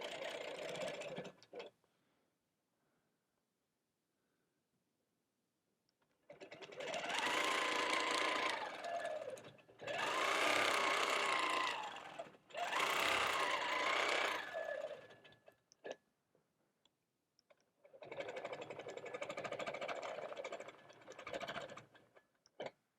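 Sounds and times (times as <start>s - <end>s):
quilting machine stitching: 0.0s - 1.7s, 6.3s - 15.6s, 17.9s - 22.1s.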